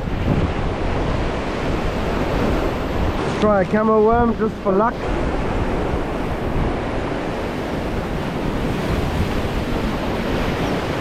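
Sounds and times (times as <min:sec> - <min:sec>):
surf washing on rocks: 0:00.0 - 0:11.0
wind on microphone: 0:00.0 - 0:11.0.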